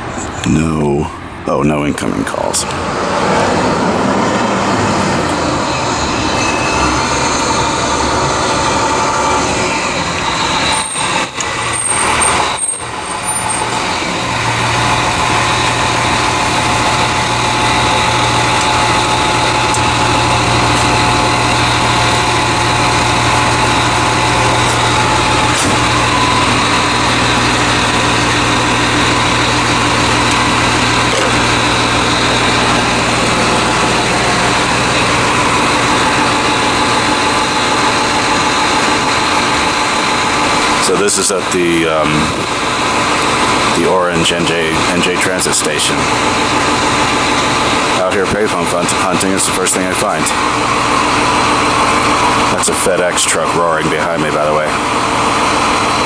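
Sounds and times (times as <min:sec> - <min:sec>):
low hum: 0:00.0 - 0:43.8
heavy vehicle engine running: 0:00.0 - 0:56.0.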